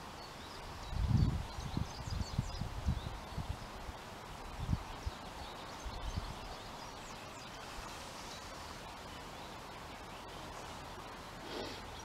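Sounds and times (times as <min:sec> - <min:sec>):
outdoor background hiss: 0:00.0 - 0:12.0
small birds chirping: 0:00.0 - 0:12.0.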